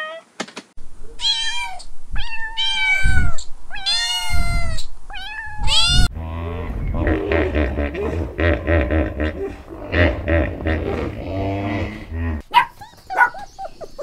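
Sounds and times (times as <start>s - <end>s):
kitten meowing: 1.2s - 6.1s
low pulsing rumble: 6.1s - 12.4s.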